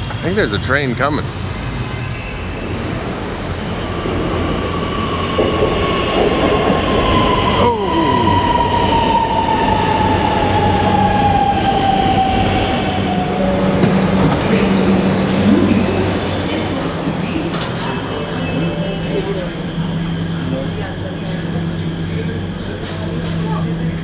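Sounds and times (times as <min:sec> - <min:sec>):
electric train braking: 0:01.3 - 0:24.0.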